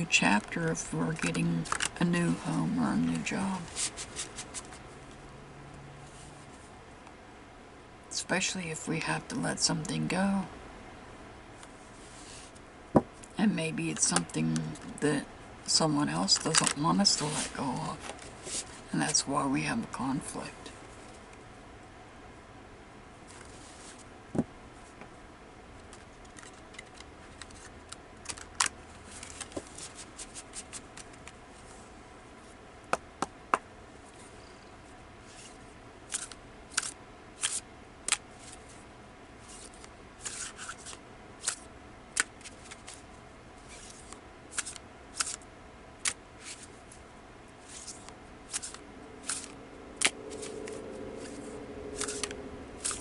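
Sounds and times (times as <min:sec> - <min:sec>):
cards being shuffled: 0:01.2 - 0:04.8, 0:25.8 - 0:31.4, 0:35.2 - 0:38.8, 0:39.4 - 0:45.4, 0:46.0 - 0:47.0, 0:47.6 - 0:53.0.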